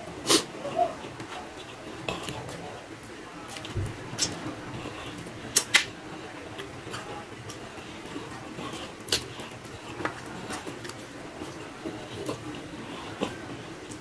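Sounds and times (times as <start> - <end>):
man chewing with lip smacks: 6.5 - 14.0.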